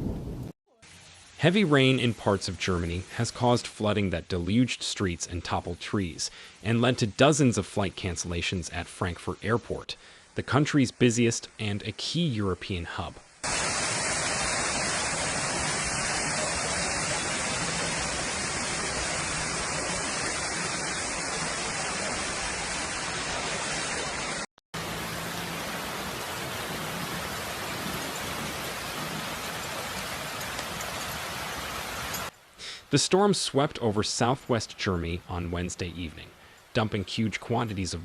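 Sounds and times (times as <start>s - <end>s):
heavy rain pouring: 13.4s - 32.3s.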